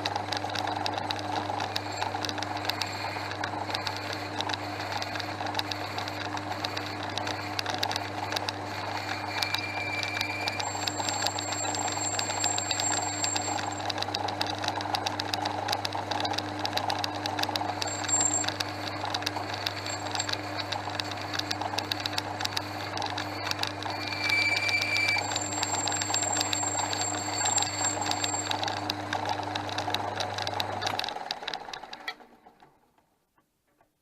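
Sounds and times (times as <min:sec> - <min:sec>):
rapid ticking from lathe: 0:00.0 - 0:32.3
lathe motor hum: 0:00.0 - 0:32.6.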